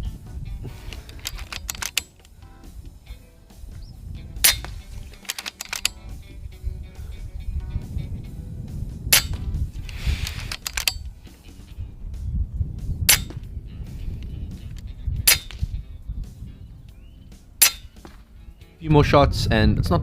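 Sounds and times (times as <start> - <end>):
background music: 0.0 - 20.0
small clicks: 0.7 - 2.3, 4.4 - 6.1, 9.2 - 11.1
sharp gunshots: 0.8 - 2.3, 4.4 - 6.3, 9.1 - 11.0, 13.1 - 13.5, 15.2 - 15.8, 17.6 - 18.2
low rumble: 5.8 - 17.6
rustle: 9.8 - 11.7.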